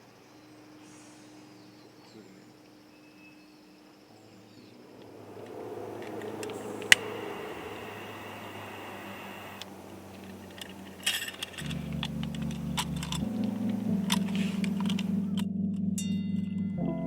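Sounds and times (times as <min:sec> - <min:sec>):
calm background music: 0:00.1 - 0:17.0
light clicks and clinks: 0:05.0 - 0:15.5.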